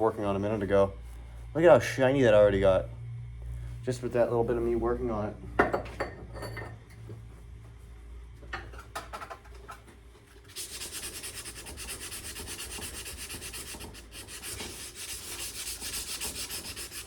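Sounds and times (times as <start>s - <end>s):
sandpaper rubbing on steel: 10.5s - 17.0s.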